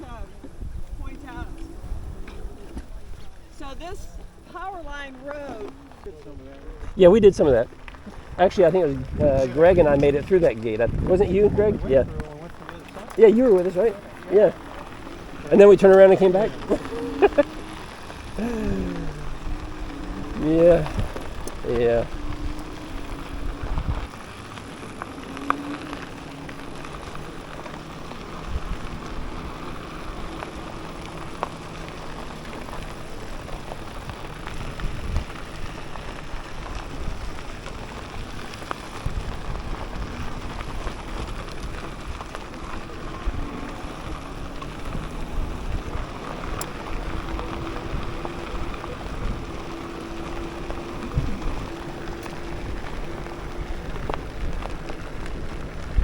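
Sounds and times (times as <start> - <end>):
wind and tyres rushing: 0.0 - 56.0
faint hum: 13.8 - 56.0.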